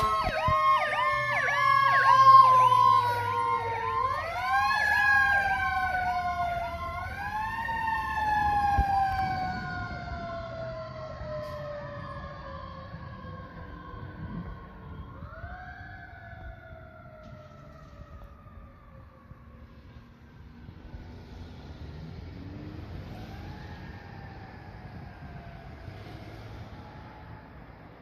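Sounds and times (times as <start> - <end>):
electronic siren yelping: 0.0 - 10.4
mechanical siren wailing: 0.0 - 21.0.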